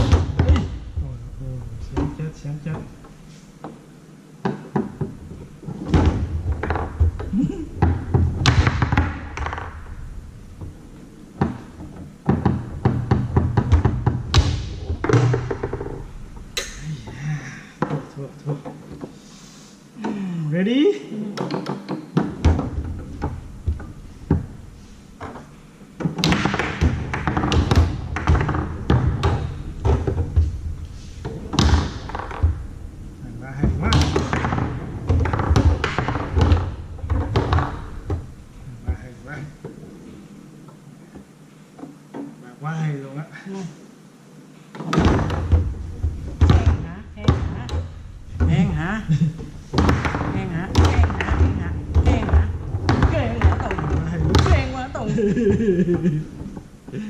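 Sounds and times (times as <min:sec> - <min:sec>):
foosball knocks and clacks: 0:00.0 - 0:01.0, 0:04.4 - 0:19.2, 0:21.3 - 0:38.3, 0:44.7 - 0:57.0.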